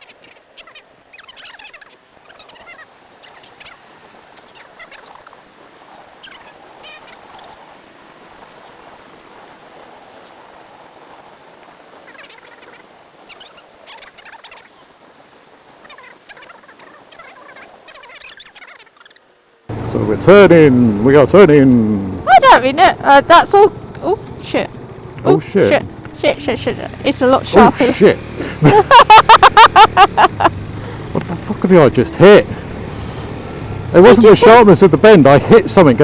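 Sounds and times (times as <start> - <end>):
rushing wind and riding noise: 0.0 - 18.1, 19.2 - 36.0
crackles and chirps: 0.0 - 19.7.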